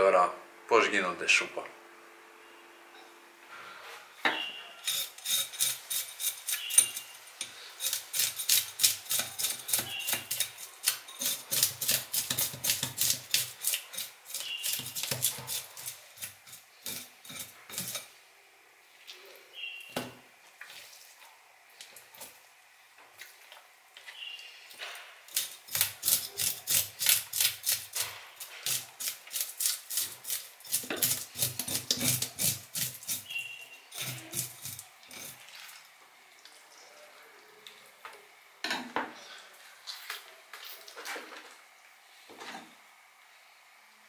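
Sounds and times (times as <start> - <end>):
knife scraping fish scales: 4.8 - 18.1, 25.3 - 35.6.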